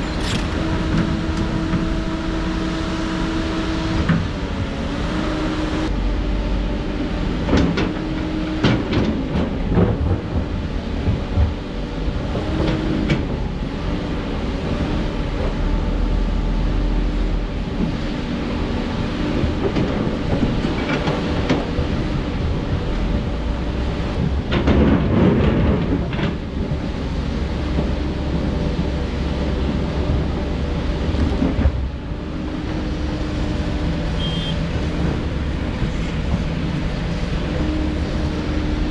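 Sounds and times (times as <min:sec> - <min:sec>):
diesel engine running: 0:00.0 - 0:38.9
metal clanks and knocks: 0:24.1 - 0:26.6.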